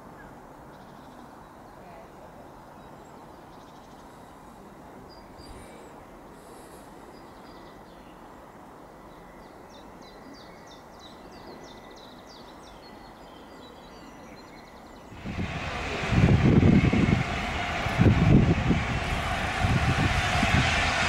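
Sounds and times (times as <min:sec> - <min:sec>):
outdoor background noise: 0:00.0 - 0:21.0
loud low rumbling: 0:15.2 - 0:21.0.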